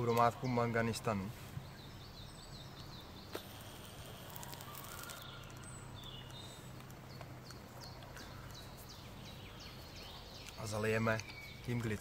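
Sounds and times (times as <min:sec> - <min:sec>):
small bird singing falling notes: 0:04.3 - 0:12.0.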